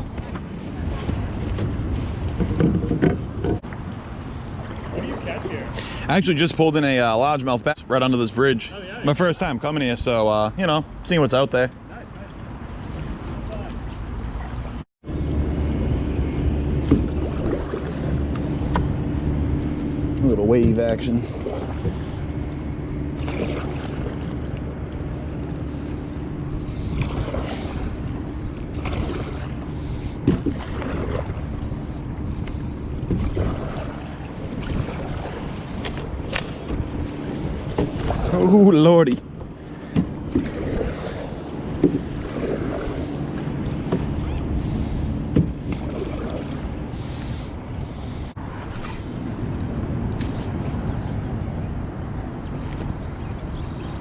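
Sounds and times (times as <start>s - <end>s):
small waves slapping a canoe: 0.0s - 7.4s, 16.7s - 50.8s
wind rumbling on microphone: 0.0s - 7.8s, 11.8s - 54.0s
steady low hum: 15.0s - 54.0s.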